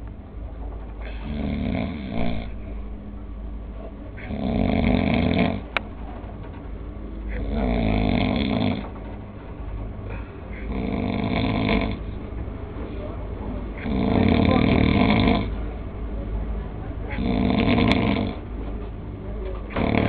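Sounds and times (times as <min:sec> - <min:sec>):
dog snoring: 0:01.0 - 0:02.6, 0:04.2 - 0:05.7, 0:07.3 - 0:09.0, 0:10.5 - 0:12.2, 0:13.8 - 0:15.6, 0:17.1 - 0:18.4, 0:19.7 - 0:20.0
quiet breathing: 0:01.0 - 0:06.3, 0:07.0 - 0:18.5.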